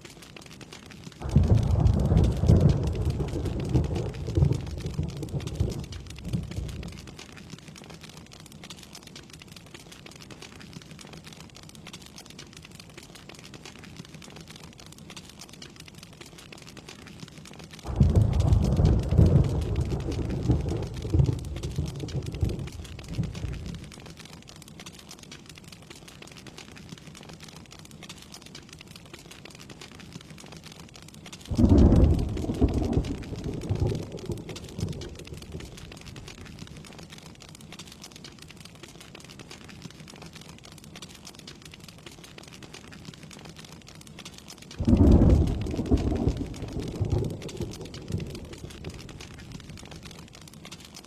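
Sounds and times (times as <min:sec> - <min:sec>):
rain hissing: 0:00.0 - 0:51.0
thunder rumbling: 0:01.2 - 0:07.2, 0:17.8 - 0:24.1, 0:31.5 - 0:37.0, 0:44.8 - 0:50.2.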